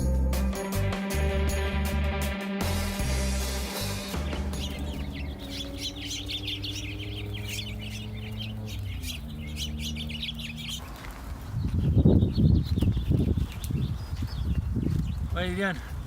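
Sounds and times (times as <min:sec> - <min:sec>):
steady low hum: 0:03.4 - 0:10.8
small birds chirping: 0:03.5 - 0:16.0.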